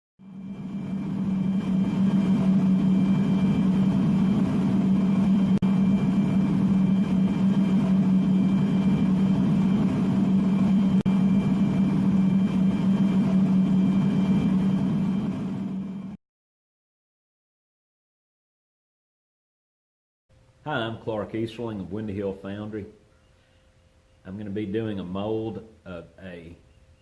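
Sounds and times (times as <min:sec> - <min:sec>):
machine humming: 0:00.2 - 0:16.2.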